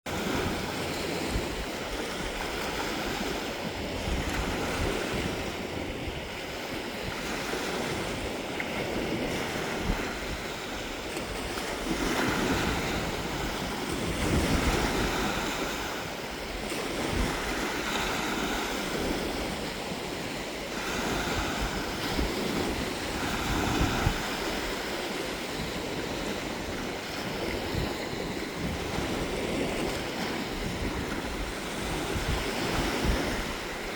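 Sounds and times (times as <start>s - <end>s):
waves washing onto beach: 0.1s - 33.9s
wind buffeting microphone: 0.1s - 33.9s.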